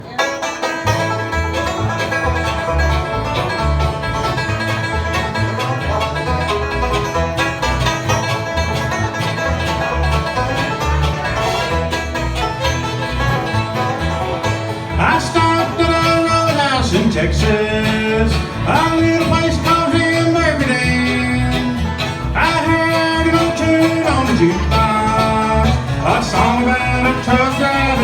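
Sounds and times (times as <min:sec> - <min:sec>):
country band playing: 0:00.0 - 0:28.0
bouncing bass line: 0:00.8 - 0:28.0.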